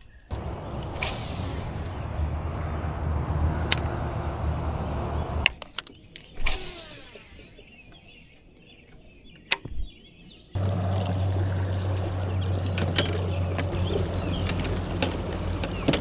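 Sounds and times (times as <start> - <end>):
steady low rumble: 0.3 - 5.5, 10.6 - 16.0.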